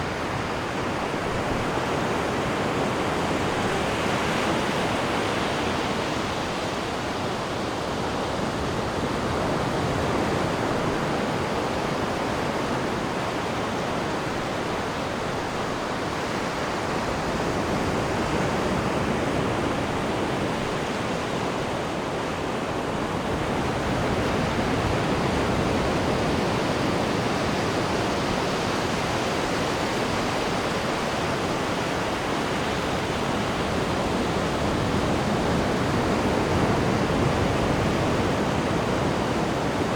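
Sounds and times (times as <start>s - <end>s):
ship wake churning water: 0.0s - 39.9s
wind: 0.0s - 39.9s.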